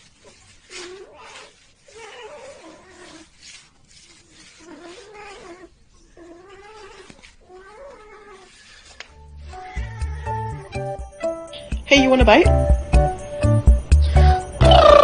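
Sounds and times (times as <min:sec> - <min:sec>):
cat yowling: 0:00.1 - 0:10.8.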